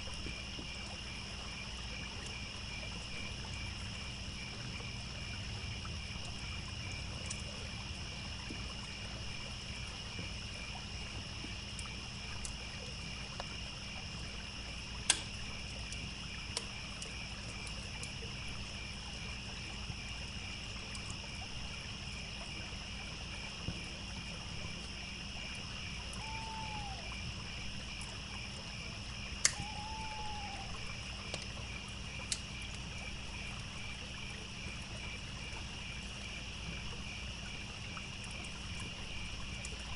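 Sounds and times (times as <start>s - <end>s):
crackling wood fire: 0.0s - 39.9s
crickets chirping: 0.0s - 39.9s
running water: 0.0s - 39.9s
short arching calls: 26.2s - 27.1s, 29.5s - 30.8s.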